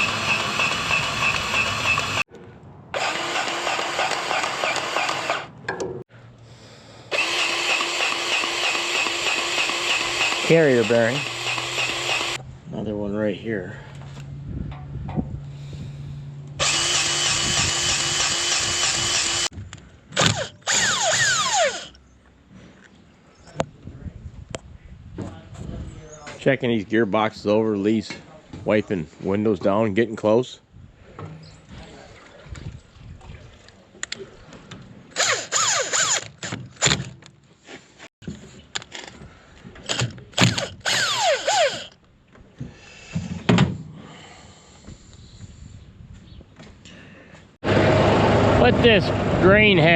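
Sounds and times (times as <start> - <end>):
grease gun motor whining: 0.0 - 2.2, 3.0 - 5.5, 7.1 - 12.4, 16.6 - 19.5, 20.2 - 22.0, 35.1 - 37.0, 39.8 - 42.0.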